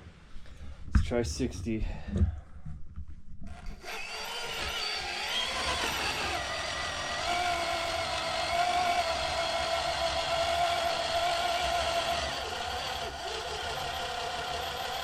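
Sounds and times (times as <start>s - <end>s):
electric motor whining: 3.5s - 15.0s.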